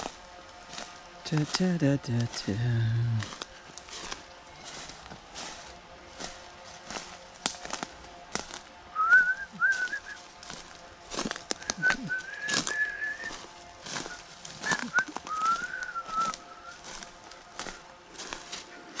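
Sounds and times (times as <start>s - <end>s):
footsteps on leaves and twigs: 0.0s - 19.0s
person whistling a tune: 9.0s - 10.2s, 11.7s - 13.4s, 14.0s - 16.8s.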